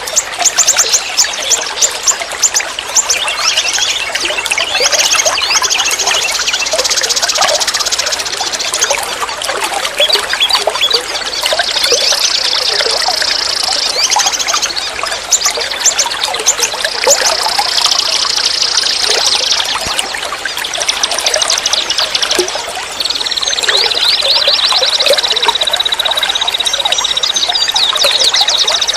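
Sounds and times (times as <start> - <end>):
songbirds chirping and trilling: 0.0 - 28.9
stream flowing and trickling: 0.0 - 28.9.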